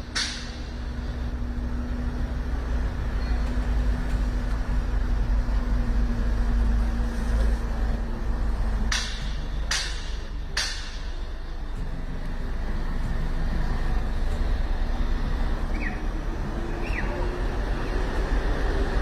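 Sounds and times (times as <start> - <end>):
heavy vehicle engine rumble: 0.0 - 19.0.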